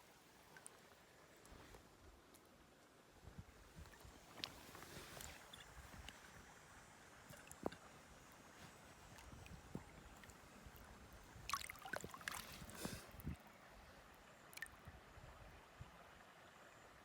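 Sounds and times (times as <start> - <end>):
stream flowing: 0.0 - 17.0
water splashing: 11.4 - 12.8.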